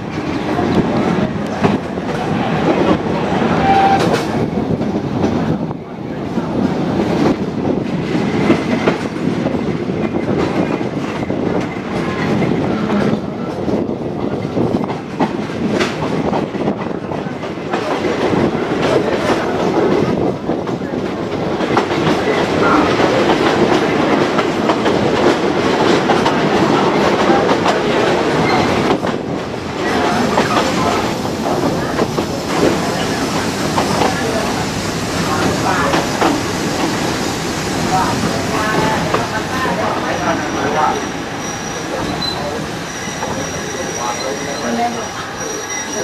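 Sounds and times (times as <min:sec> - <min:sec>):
clickety-clack over rail joints: 0:00.0 - 0:45.9
train wheels rumbling on rails: 0:00.0 - 0:46.0.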